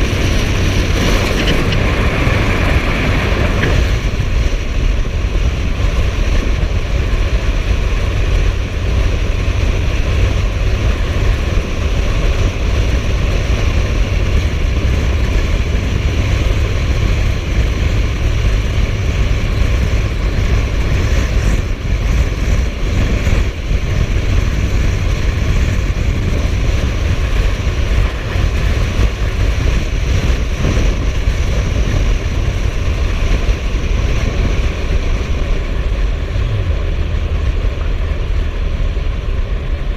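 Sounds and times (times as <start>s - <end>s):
motorcycle engine rumble: 0.0s - 39.9s
wind rushing over microphone: 0.0s - 39.9s.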